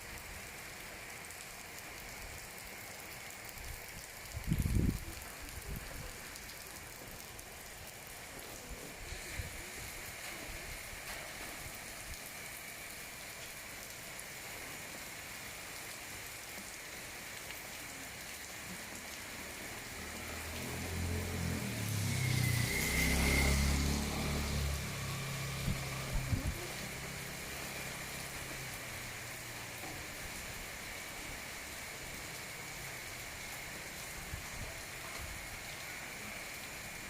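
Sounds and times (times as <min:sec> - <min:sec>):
steady rain: 0:00.0 - 0:37.0
vehicle engine: 0:19.8 - 0:28.7.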